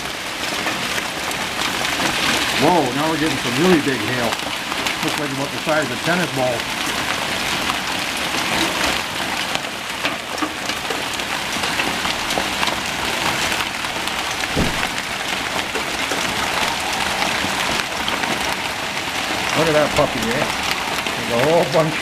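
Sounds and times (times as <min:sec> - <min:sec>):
hail and rain pounding: 0:00.0 - 0:22.0
sharp hailstone hits: 0:10.0 - 0:18.6.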